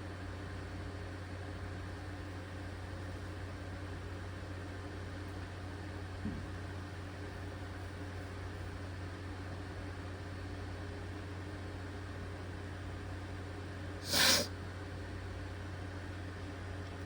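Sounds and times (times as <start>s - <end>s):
low background hum: 0.0s - 17.0s
short sharp hiss: 14.0s - 14.5s.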